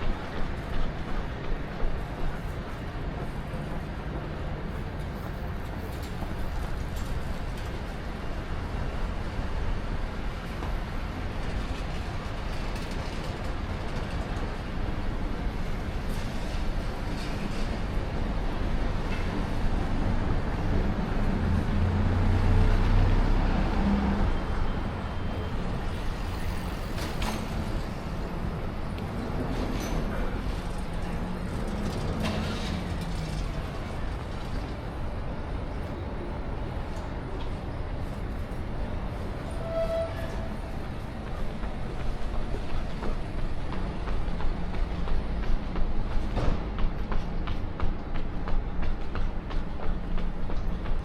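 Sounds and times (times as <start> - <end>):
city street noise: 0.0 - 51.0
road traffic rumble: 14.5 - 39.6.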